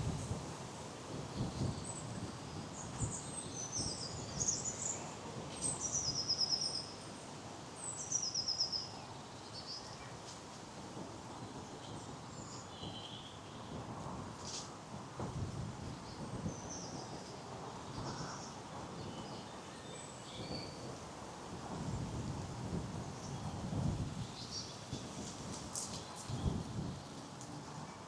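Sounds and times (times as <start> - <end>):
songbirds chirping: 24.2 - 25.0.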